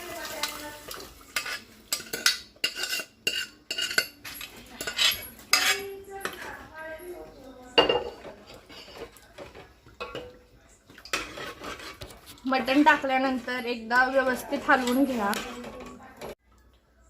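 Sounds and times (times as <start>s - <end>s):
metal spoon clinking on pot: 1.4s - 6.6s, 12.6s - 16.4s.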